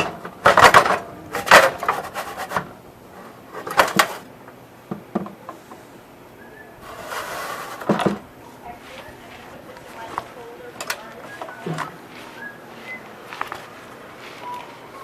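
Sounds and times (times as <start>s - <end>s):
metal parts knocking and clattering: 0.0s - 2.0s.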